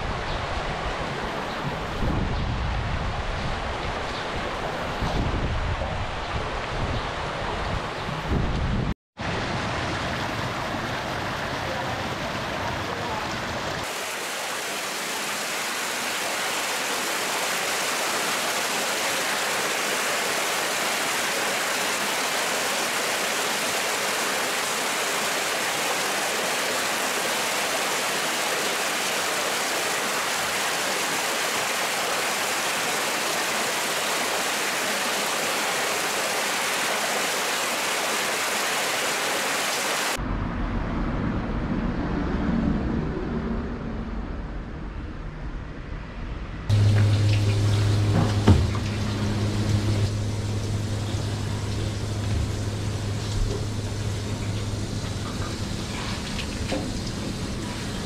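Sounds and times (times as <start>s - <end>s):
water rushing and splashing: 0.0s - 40.2s, 46.7s - 58.0s
low rumble: 40.2s - 56.6s.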